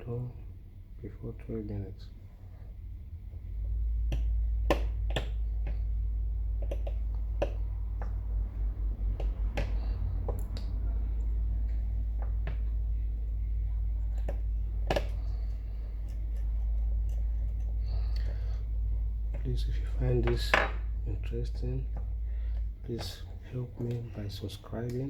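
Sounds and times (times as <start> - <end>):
steady low hum: 0.0 - 25.0
small repair tools clicking and tapping: 6.6 - 8.3, 14.0 - 18.4.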